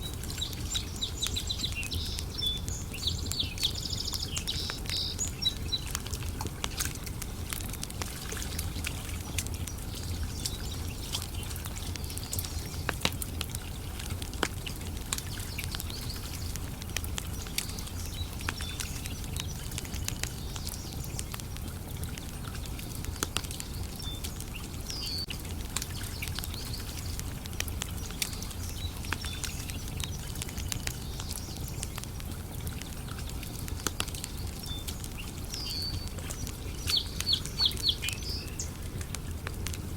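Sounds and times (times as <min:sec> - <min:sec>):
bird chirping: 0:00.0 - 0:06.0, 0:34.2 - 0:39.0
campfire crackling and popping: 0:00.0 - 0:39.9.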